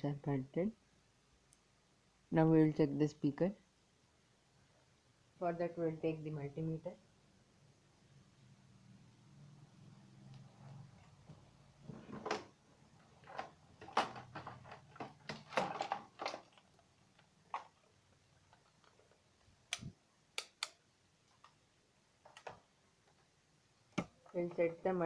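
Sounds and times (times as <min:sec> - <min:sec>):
knocks and rustles of handling: 0:10.6 - 0:19.6
sharp clicks: 0:19.6 - 0:21.6.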